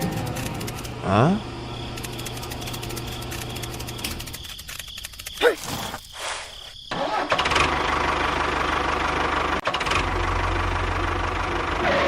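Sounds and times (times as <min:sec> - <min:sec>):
motor running: 0:00.0 - 0:05.4.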